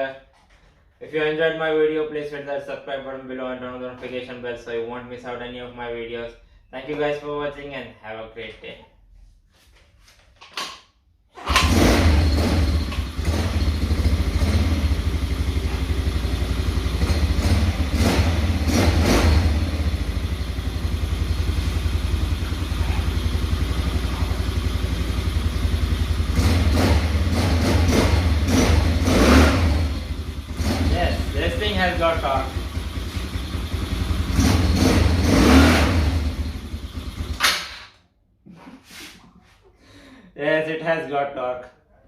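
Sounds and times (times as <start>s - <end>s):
small engine running and revving: 11.6s - 30.9s, 32.6s - 37.4s.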